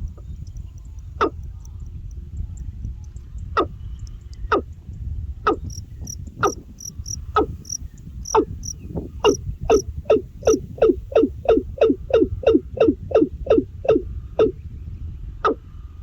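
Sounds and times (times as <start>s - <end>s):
high-pitched insect chirping: 5.5s - 14.5s.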